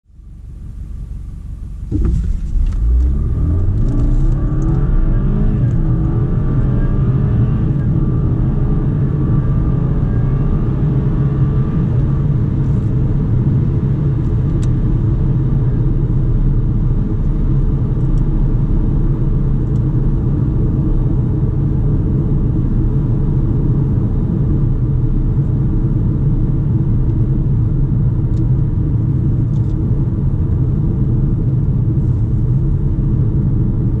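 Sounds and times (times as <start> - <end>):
road noise: 0.1 - 34.0
car engine accelerating: 0.5 - 22.4.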